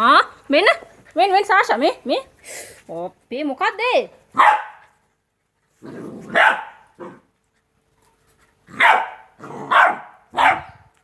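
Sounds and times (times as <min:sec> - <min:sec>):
puppy barking: 0:04.3 - 0:05.0, 0:06.3 - 0:07.2, 0:08.7 - 0:10.9.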